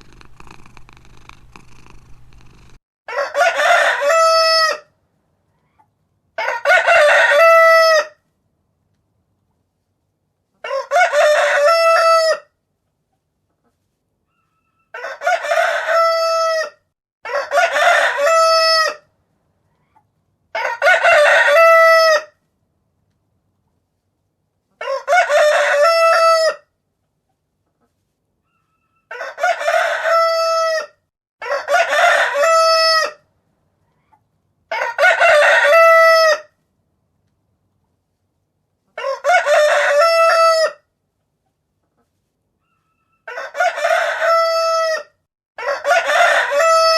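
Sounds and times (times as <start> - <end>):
rooster crowing: 3.1 - 4.9, 6.4 - 8.2, 10.6 - 12.5, 14.5 - 19.0, 20.6 - 22.3, 24.8 - 26.6, 28.6 - 33.2, 34.7 - 36.5, 39.0 - 40.8, 42.7 - 46.9.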